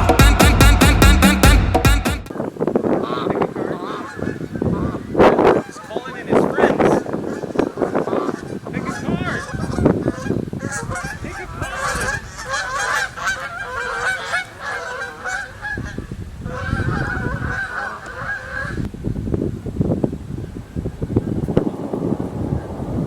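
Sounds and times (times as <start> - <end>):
many birds calling: 2.3 - 18.9.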